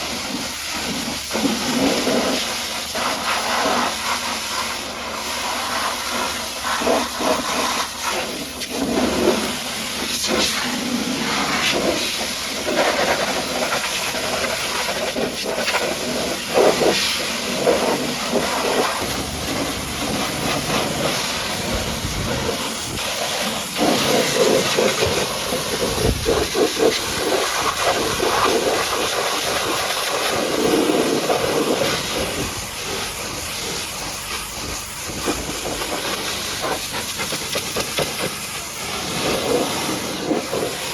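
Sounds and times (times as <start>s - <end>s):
pressure washer spraying water: 0.0s - 40.9s.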